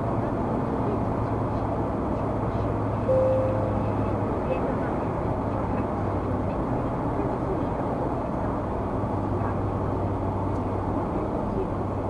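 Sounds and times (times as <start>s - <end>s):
constant low hum: 0.0s - 8.6s
car road and engine noise: 0.0s - 12.0s.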